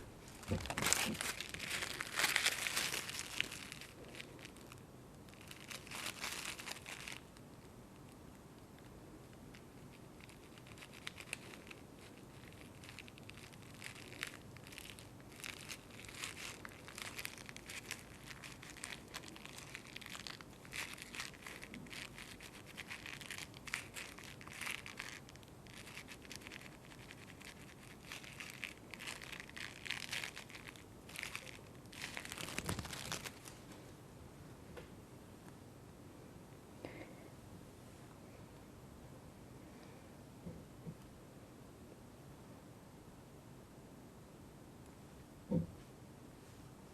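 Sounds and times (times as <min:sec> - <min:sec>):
crinkling and crumpling: 0:00.0 - 0:33.9.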